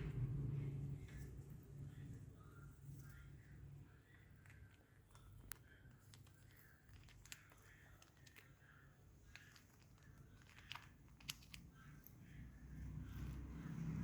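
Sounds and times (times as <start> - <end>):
low rumble: 0.0 - 2.1.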